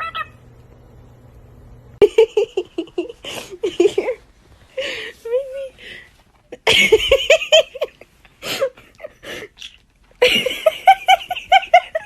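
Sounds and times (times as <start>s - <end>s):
person laughing: 10.2s - 12.0s.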